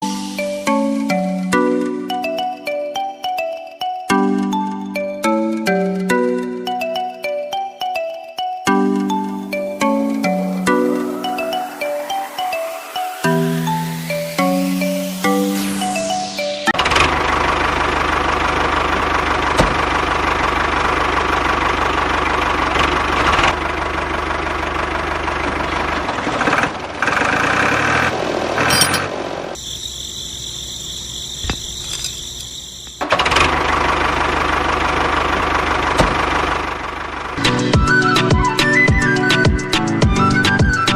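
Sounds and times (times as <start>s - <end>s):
high whine: 10.5s - 18.0s
small tractor engine running: 16.8s - 29.6s, 31.0s - 37.9s.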